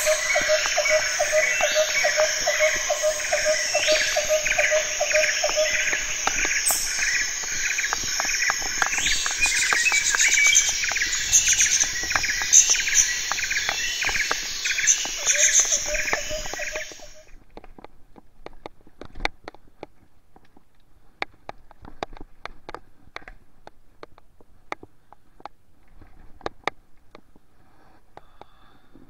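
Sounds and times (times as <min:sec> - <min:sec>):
high chirp: 0:00.0 - 0:17.3.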